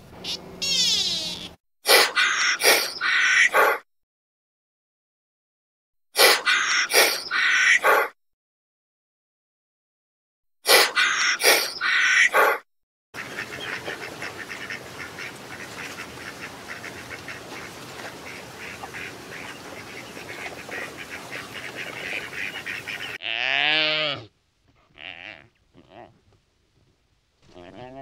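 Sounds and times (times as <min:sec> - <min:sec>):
whistling ducks calling: 0:13.2 - 0:23.2
low drawn-out animal call: 0:22.6 - 0:26.3, 0:27.4 - 0:28.0.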